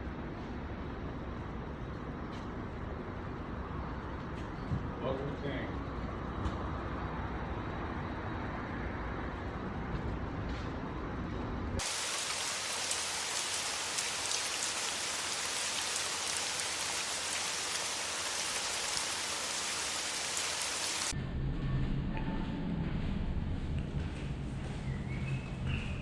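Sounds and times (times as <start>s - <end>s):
heavy rain falling: 11.8s - 21.1s.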